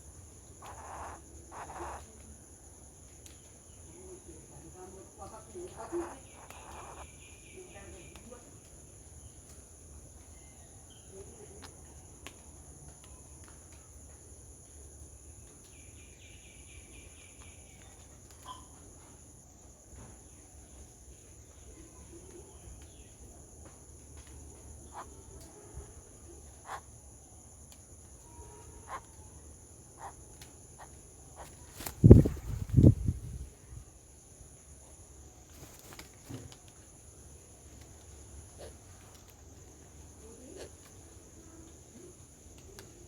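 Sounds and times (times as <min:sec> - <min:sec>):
insects droning: 0:00.0 - 0:43.0
rapid trilling call: 0:00.6 - 0:02.1, 0:05.5 - 0:07.4, 0:30.8 - 0:33.4.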